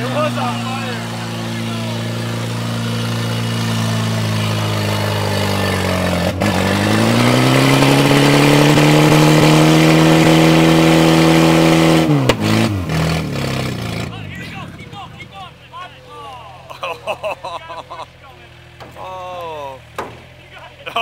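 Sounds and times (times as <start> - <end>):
tire spinning and burning: 0.0 - 15.4
truck engine revving hard: 0.0 - 21.0.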